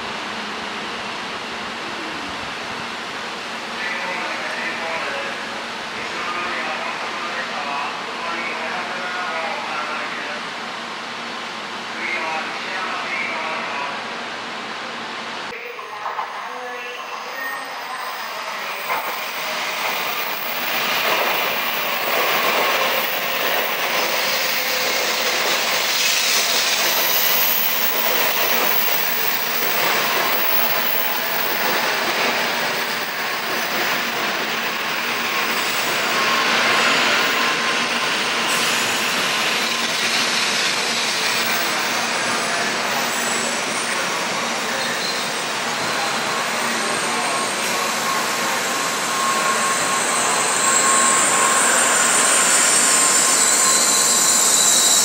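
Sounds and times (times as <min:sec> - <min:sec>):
train running noise: 0:00.0 - 0:55.0
wheel squeal: 0:38.5 - 0:55.0.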